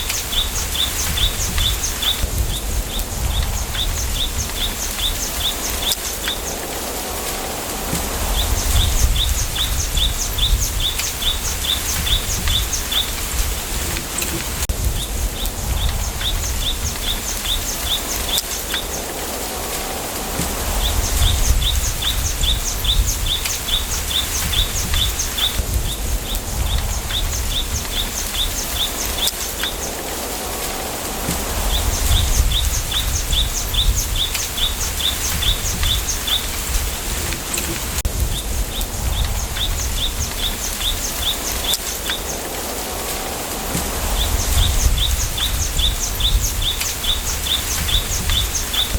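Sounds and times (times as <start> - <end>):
low wind rumble: 0.0 - 48.9.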